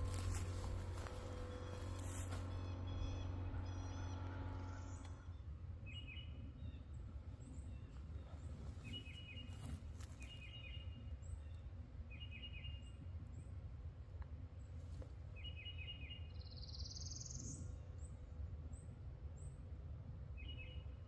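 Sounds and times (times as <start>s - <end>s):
songbird calling: 0.0s - 13.0s, 15.4s - 17.9s, 20.4s - 21.0s
multi-tone hum: 0.0s - 16.4s
low steady rumble: 0.0s - 21.0s.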